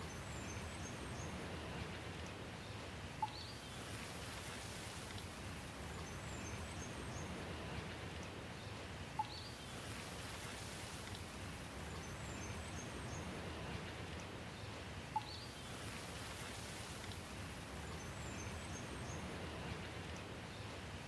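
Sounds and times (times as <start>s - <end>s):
steady rain: 0.0s - 21.0s
faint bird chirps: 3.2s - 3.9s, 9.2s - 9.8s, 15.1s - 16.0s.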